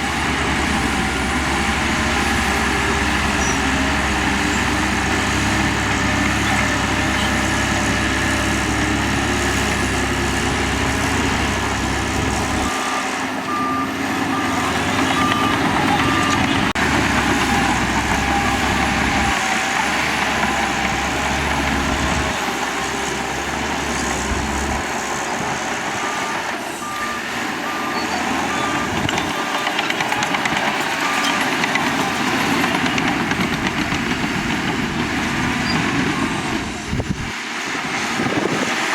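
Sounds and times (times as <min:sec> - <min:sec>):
diesel engine running: 0:00.0 - 0:38.9
reversing alarm beeping: 0:11.4 - 0:16.7, 0:26.0 - 0:32.1.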